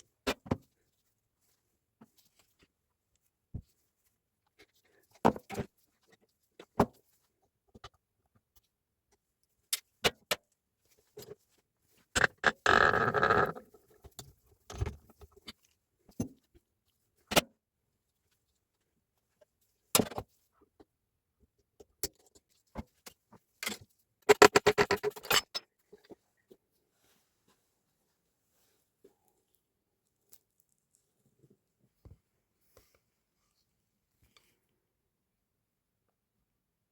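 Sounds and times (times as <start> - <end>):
clicks and knocks of hand tools: 23.6 - 25.7.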